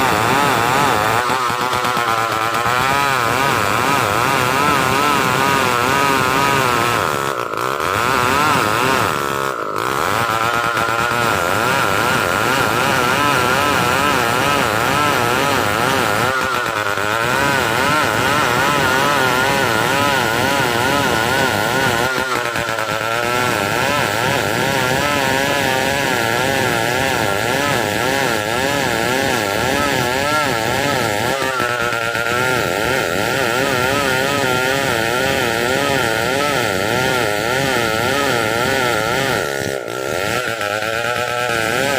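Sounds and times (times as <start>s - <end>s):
chainsaw ripping through log: 0.0s - 41.9s.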